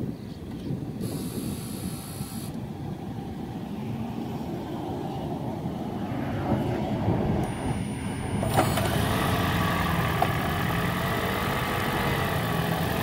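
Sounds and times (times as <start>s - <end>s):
car running hum: 6.4s - 13.0s.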